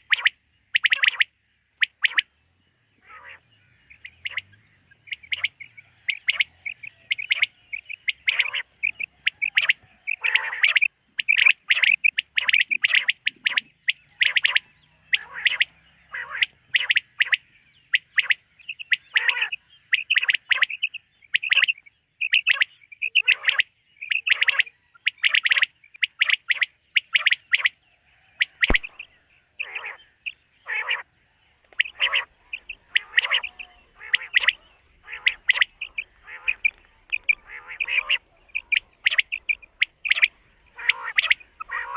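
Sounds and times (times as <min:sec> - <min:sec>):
quail calling: 0:00.0 - 0:02.3, 0:03.0 - 0:41.9
sharp click: 0:28.6 - 0:29.1.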